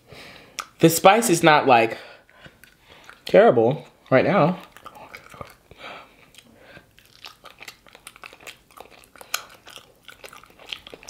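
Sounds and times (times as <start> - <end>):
chewing fried chicken: 2.2 - 11.0.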